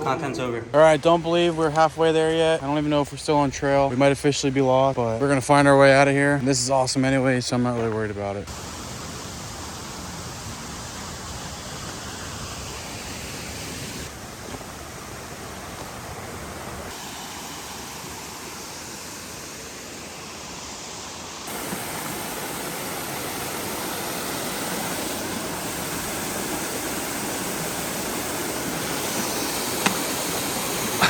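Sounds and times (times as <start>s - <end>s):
stream water rushing: 8.5s - 31.0s.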